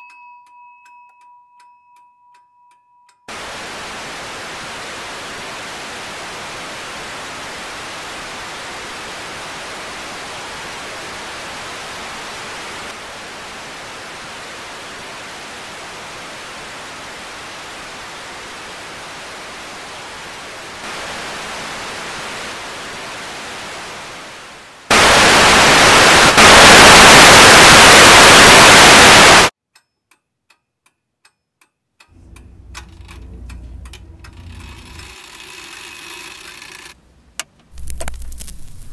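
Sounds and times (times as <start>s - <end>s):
television static hiss: 3.3s - 29.5s, 36.5s - 38.9s
faint rubbing: 32.1s - 36.9s.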